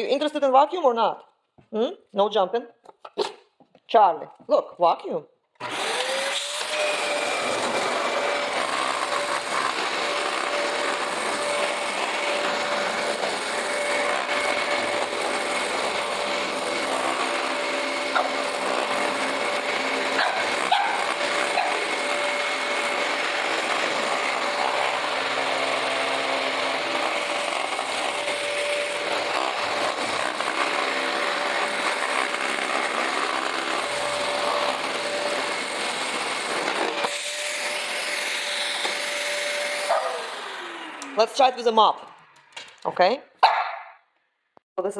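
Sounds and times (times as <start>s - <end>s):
vacuum cleaner running: 5.6s - 42.5s.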